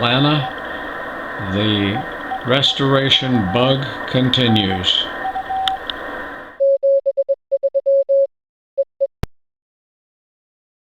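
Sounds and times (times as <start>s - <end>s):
morse code tone: 0.0s - 8.3s.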